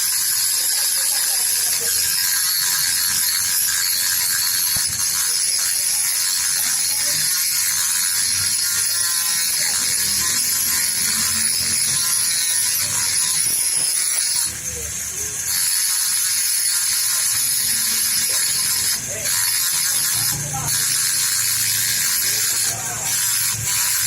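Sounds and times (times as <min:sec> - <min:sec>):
machine whirring high-pitched: 0:00.0 - 0:24.0.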